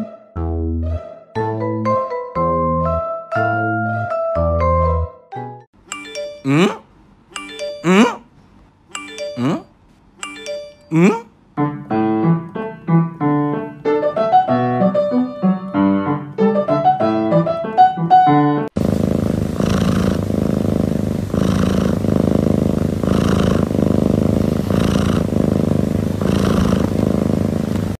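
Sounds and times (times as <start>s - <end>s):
piano music: 0.0s - 6.7s, 7.4s - 8.1s, 9.0s - 9.6s, 10.2s - 11.0s, 11.6s - 18.8s
cat purring: 18.7s - 28.0s.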